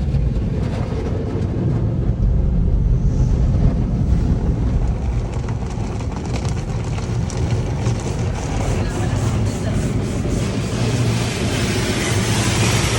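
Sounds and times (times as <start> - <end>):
car wash brushes and water spray: 3.0 - 12.9.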